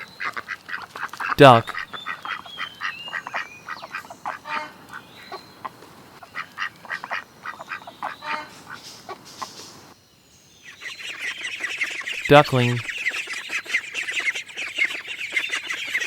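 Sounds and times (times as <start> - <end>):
ducks quacking: 0.2 - 4.8, 6.2 - 9.2.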